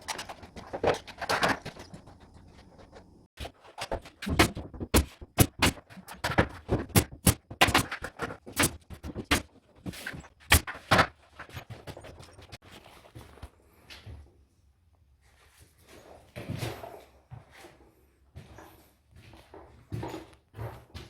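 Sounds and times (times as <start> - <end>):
sharp knocks and clacks: 0.0 - 12.6
scraping and rustling: 0.0 - 13.6.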